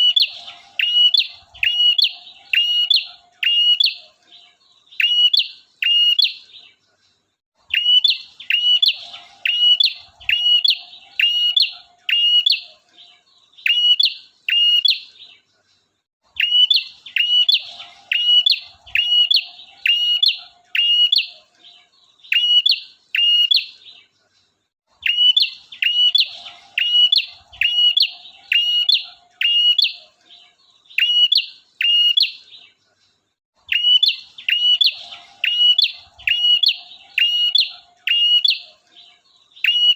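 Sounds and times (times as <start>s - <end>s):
bird singing sharp high notes: 0.0s - 4.0s, 7.7s - 12.7s, 25.0s - 30.1s, 33.7s - 38.8s
fainter lower bird twitter: 0.0s - 39.9s.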